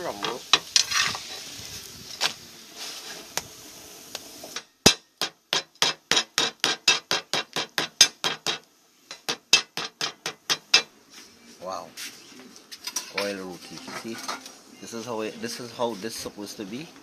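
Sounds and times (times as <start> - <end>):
flatbread sizzling on a griddle: 0.0 - 11.4, 12.8 - 17.0
sharp knocks of beating bread: 4.9 - 10.9.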